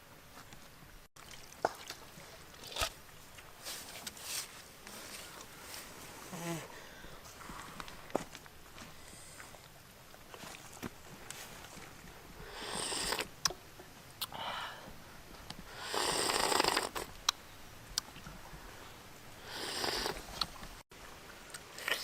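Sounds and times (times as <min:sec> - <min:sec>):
person slurping soup: 0:12.4 - 0:13.3, 0:15.8 - 0:17.1, 0:19.4 - 0:20.4.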